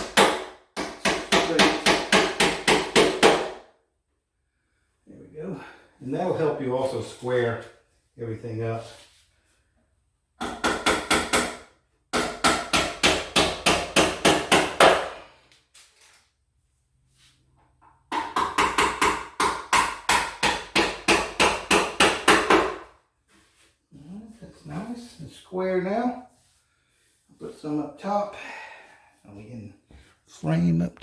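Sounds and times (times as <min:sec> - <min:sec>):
hammer driving nails into wood: 0:00.0 - 0:03.7, 0:10.4 - 0:15.1, 0:18.1 - 0:22.9.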